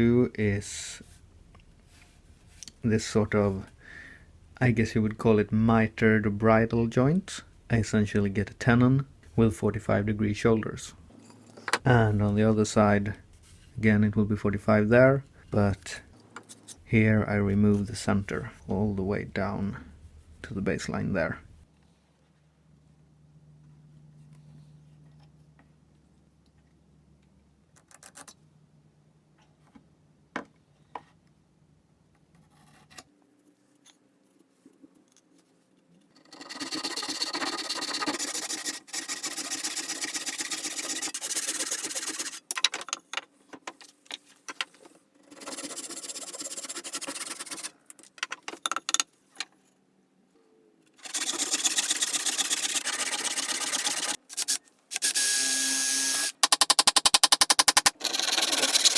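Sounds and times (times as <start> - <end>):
hand saw cutting wood: 36.2 - 42.5, 45.3 - 47.7, 51.0 - 58.9.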